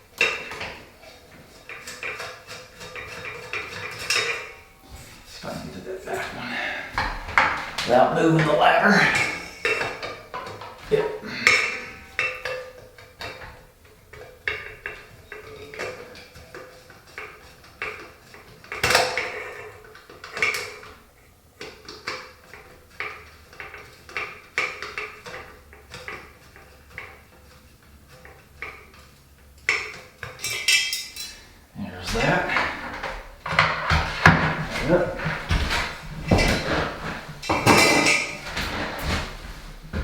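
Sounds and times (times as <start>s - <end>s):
loud knocks: 32.1s - 40.0s.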